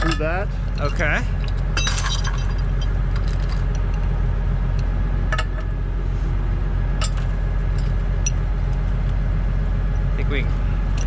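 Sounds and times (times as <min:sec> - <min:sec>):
metal chains clinking: 0:00.0 - 0:04.0
heavy equipment engine running: 0:00.0 - 0:11.0.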